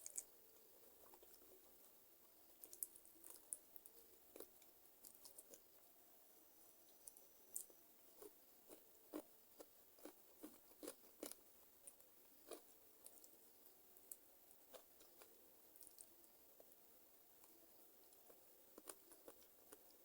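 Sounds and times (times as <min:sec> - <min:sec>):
close chewing with wet crunches: 0:00.0 - 0:00.3, 0:07.5 - 0:13.4.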